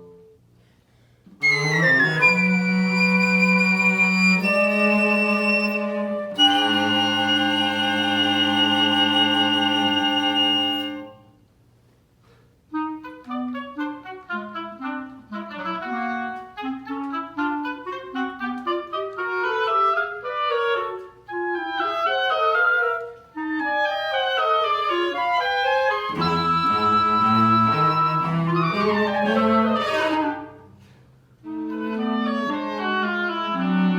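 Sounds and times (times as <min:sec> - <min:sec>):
woodwind chamber music: 0:00.0 - 0:00.5, 0:01.4 - 0:11.4, 0:12.6 - 0:33.9
low cello notes: 0:26.0 - 0:30.8.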